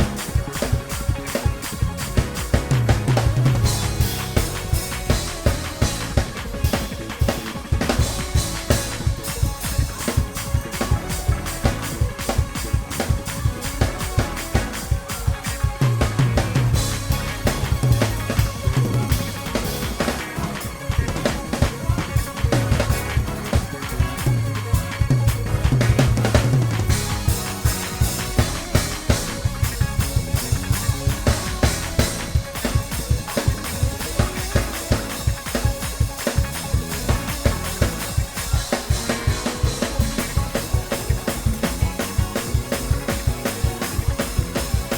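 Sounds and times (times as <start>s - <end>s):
drum kit groove: 0.0s - 44.9s
sustained keyboard chords: 0.0s - 44.9s.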